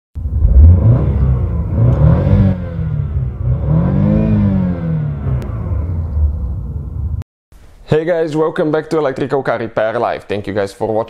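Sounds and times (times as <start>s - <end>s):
car engine revving: 0.2s - 7.2s.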